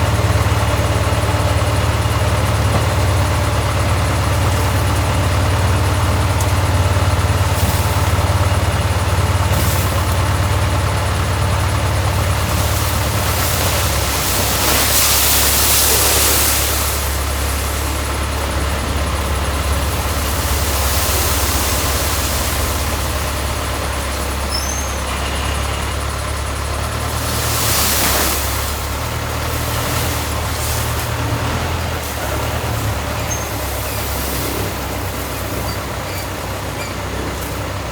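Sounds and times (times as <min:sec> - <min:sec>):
rushing hiss: 0:12.3 - 0:26.2, 0:27.1 - 0:37.9.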